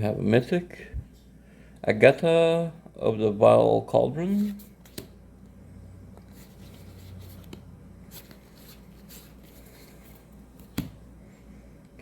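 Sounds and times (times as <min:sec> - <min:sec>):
low steady hum: 0:00.0 - 0:12.0
trading cards rubbing and clicking: 0:06.2 - 0:10.9.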